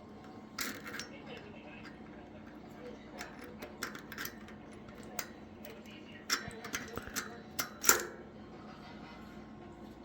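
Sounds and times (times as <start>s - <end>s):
metal parts clicking and tapping: 0.0s - 8.2s.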